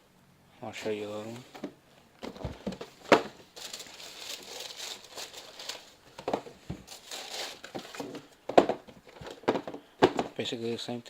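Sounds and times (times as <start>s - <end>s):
tissue paper crinkling: 3.4s - 6.1s, 6.8s - 8.1s.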